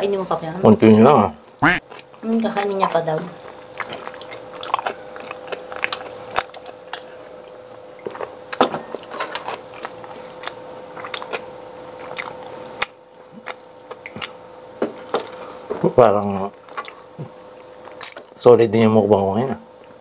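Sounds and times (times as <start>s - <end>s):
chewing food: 9.8s - 15.4s, 16.6s - 18.3s.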